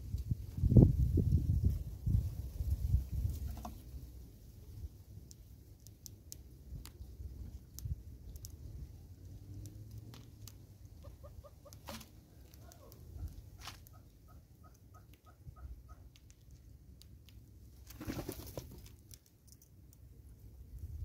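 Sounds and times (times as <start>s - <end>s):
bird wing flaps: 17.8s - 18.9s.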